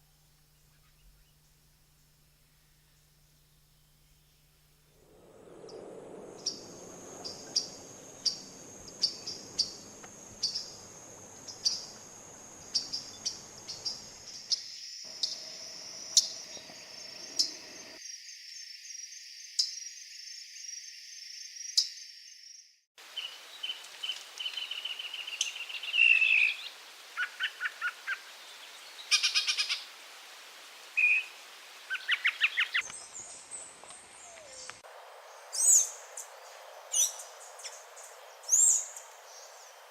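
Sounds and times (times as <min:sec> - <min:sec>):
steady hiss: 0:00.0 - 0:18.0, 0:23.0 - 0:39.9
bird trills and buzzy calls: 0:12.6 - 0:18.0
sharp high bird chirps: 0:12.6 - 0:18.0.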